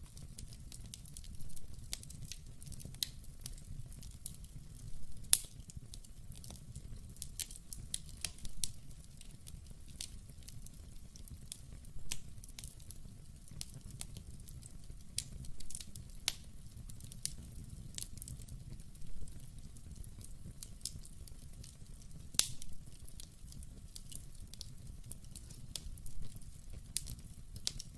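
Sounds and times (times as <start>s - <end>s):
low rumble of burning: 0.0s - 27.9s
wood fire crackling: 0.0s - 27.9s.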